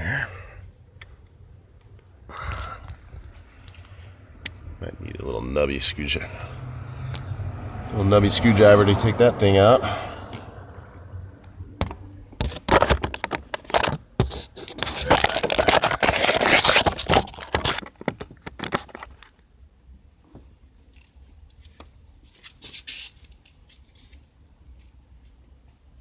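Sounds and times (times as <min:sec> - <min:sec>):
rough scraping and rustling: 0:12.4 - 0:19.4.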